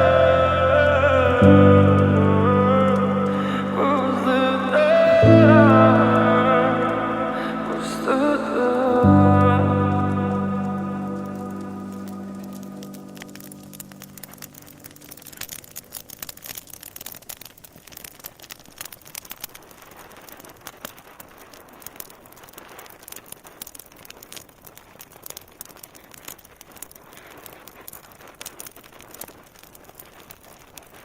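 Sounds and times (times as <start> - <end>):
fire crackling and popping: 0.0 - 31.0
soft hiss: 0.0 - 31.0.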